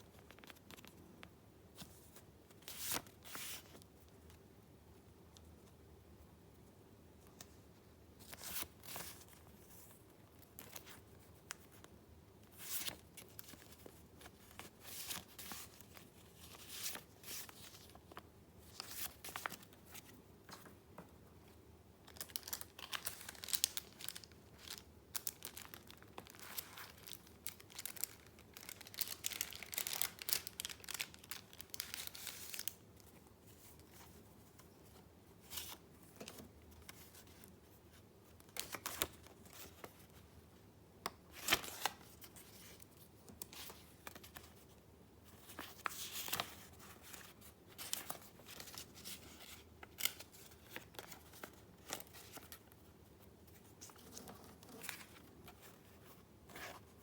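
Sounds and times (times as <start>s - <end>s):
paper crinkling and rustling: 8.2s - 11.9s, 12.5s - 20.8s, 22.1s - 37.6s, 41.3s - 57.0s.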